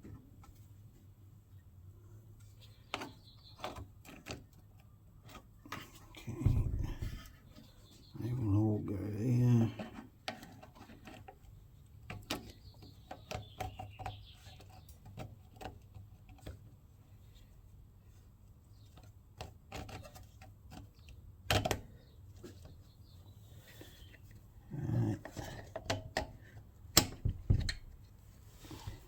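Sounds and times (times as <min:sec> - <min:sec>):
steady low hum: 0:06.2 - 0:07.5.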